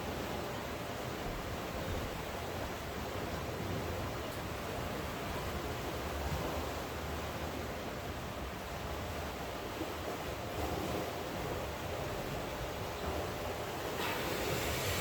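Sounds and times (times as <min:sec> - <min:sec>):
sea surf washing: 0:09.6 - 0:15.0
rain falling: 0:13.8 - 0:15.0.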